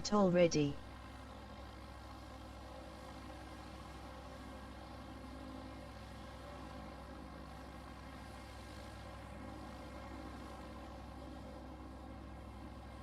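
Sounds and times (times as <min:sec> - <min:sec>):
small airplane motor drone: 0:00.8 - 0:13.0.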